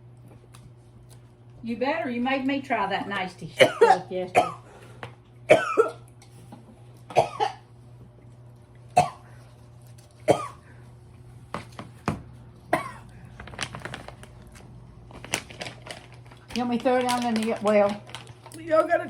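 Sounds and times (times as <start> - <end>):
person coughing and gagging: 3.6 - 4.6, 5.5 - 6.1, 7.1 - 7.6, 9.0 - 9.3, 10.3 - 10.6, 12.7 - 13.1.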